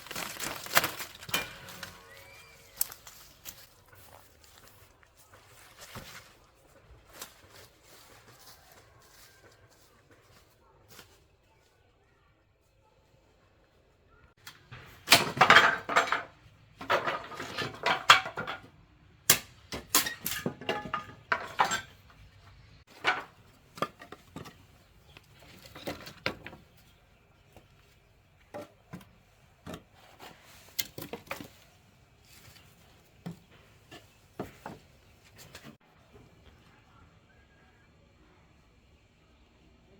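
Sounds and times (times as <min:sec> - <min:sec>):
clatter of hard objects handled: 0:00.0 - 0:06.4, 0:14.8 - 0:18.7, 0:19.8 - 0:22.2, 0:22.9 - 0:27.0.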